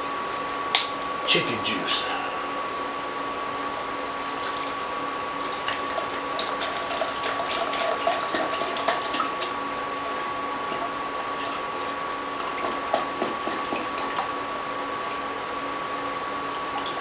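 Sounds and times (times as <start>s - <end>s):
steady background hum: 0.0s - 17.0s
splashing and gurgling: 5.4s - 14.3s.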